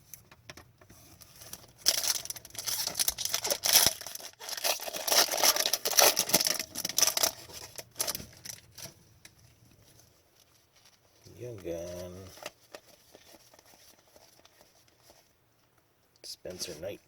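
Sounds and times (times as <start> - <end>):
wrapper tearing and crinkling: 1.3 - 8.9.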